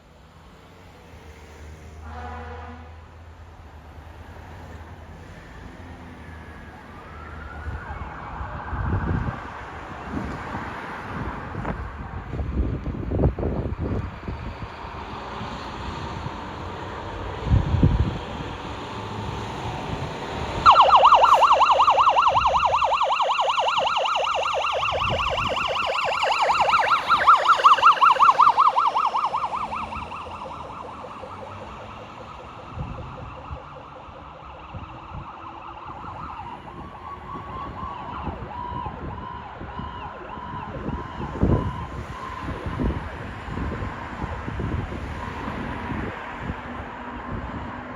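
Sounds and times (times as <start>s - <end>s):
steady siren tone: 19.9s - 43.2s
electronic siren yelping: 20.6s - 38.9s.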